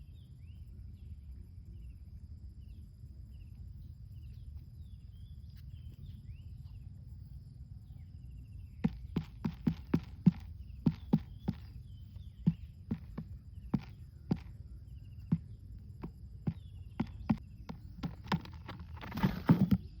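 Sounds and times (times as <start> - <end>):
sharp knocks or taps: 8.8 - 11.7, 12.4 - 14.5
rustling: 17.0 - 20.0.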